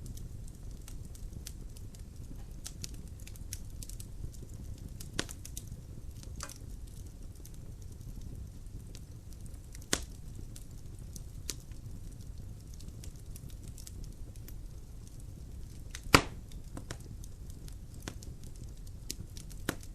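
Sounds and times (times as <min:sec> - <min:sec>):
fire crackling: 0:00.0 - 0:19.9
fire rumbling: 0:00.0 - 0:19.9
logs popping: 0:09.8 - 0:10.2, 0:15.7 - 0:17.1, 0:19.1 - 0:19.9.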